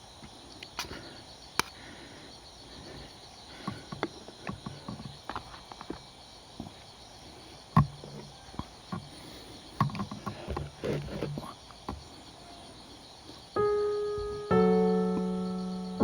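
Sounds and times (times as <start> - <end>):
crickets chirping: 0.0 - 16.0
sharp clicks and knocks: 3.6 - 6.7, 7.7 - 12.1
piano music: 13.6 - 16.0.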